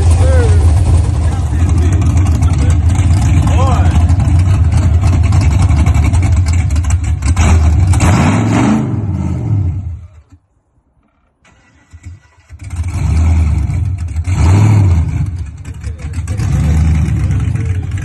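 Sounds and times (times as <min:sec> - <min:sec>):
loud car engine revving: 0:00.0 - 0:10.3, 0:12.5 - 0:18.0.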